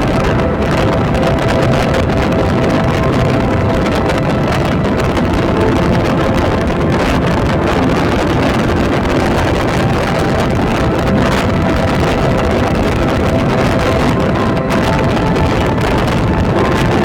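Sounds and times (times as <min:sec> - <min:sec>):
train rumbling on track: 0:00.0 - 0:17.0
wind buffeting microphone: 0:00.0 - 0:17.0.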